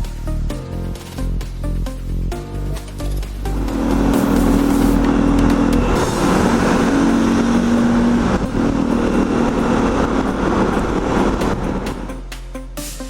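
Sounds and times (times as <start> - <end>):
motorcycle engine running: 3.0 - 12.1
wind and road noise: 3.5 - 12.2.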